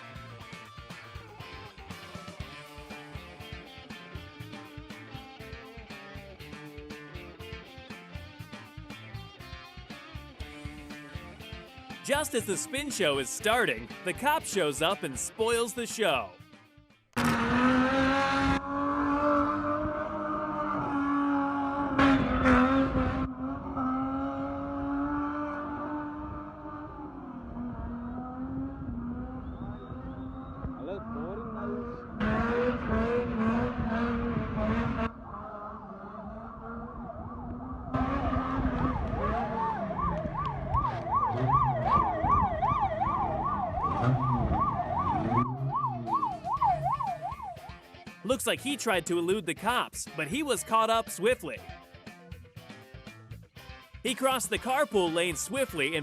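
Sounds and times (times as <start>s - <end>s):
car engine at high revs: 17.2s - 47.6s
police siren yelping: 35.4s - 47.8s.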